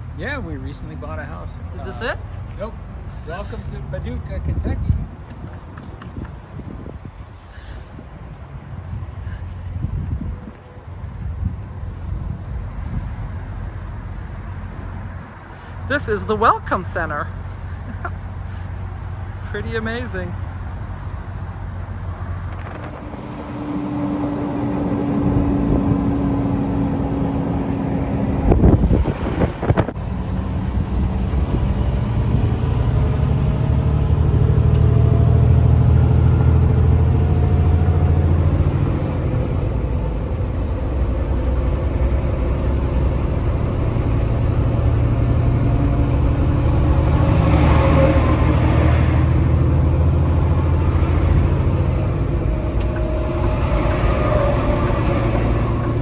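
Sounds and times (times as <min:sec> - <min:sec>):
road noise: 0:00.0 - 0:56.0
truck diesel engine drone: 0:00.0 - 0:56.0
loud clatter: 0:22.5 - 0:23.6.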